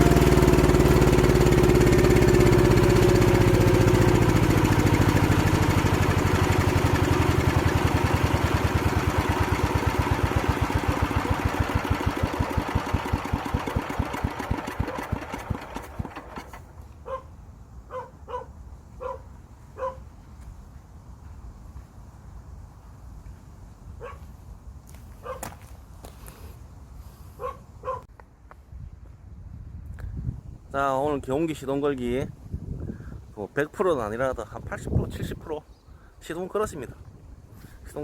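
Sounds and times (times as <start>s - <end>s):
diesel tractor engine running: 0.0s - 16.8s
dog barking: 17.0s - 17.3s, 17.9s - 20.0s, 24.0s - 24.2s, 25.2s - 25.5s, 27.4s - 28.1s.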